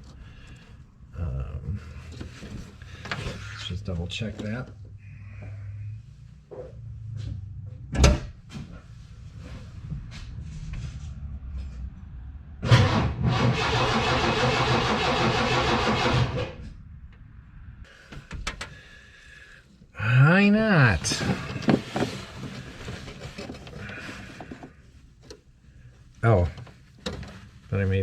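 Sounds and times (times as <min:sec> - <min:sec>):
starter motor cranking engine: 0:12.7 - 0:16.6.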